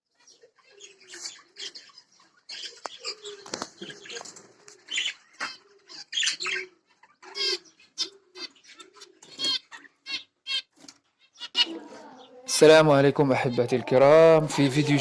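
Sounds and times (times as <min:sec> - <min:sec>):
lovebirds chirping: 0:11.4 - 0:15.0.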